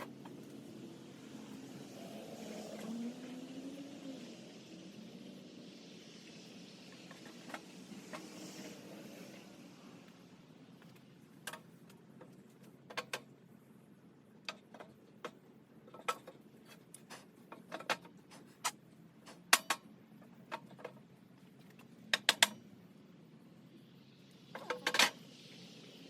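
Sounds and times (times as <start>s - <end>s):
small hard parts clicking: 14.4s - 22.7s.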